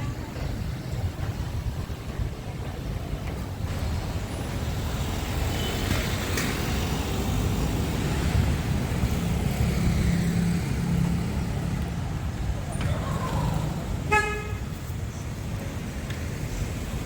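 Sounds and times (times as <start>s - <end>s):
road traffic rumble: 0.0s - 17.0s
vehicle engine hum: 6.1s - 17.0s.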